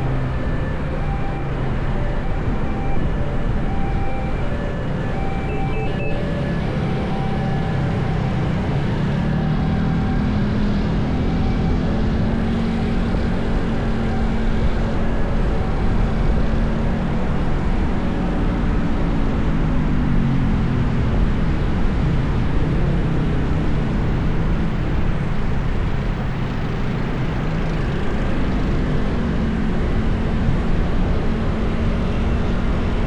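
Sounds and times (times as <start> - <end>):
road traffic: 0.0 - 33.0
vehicle engine rising in pitch: 0.0 - 33.0
short high tones: 5.5 - 6.2.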